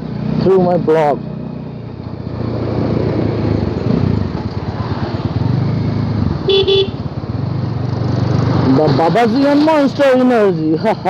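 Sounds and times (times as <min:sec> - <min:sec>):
horn beep: 0:06.5 - 0:07.0.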